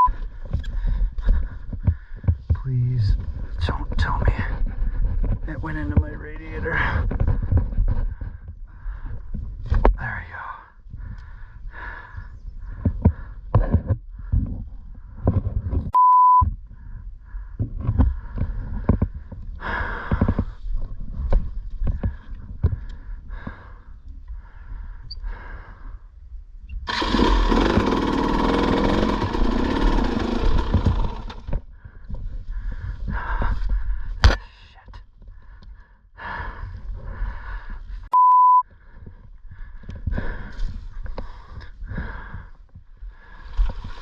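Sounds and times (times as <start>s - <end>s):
loud pure beep: 16.0s - 16.5s, 38.1s - 38.6s
dirt bike engine bursts: 26.9s - 31.5s.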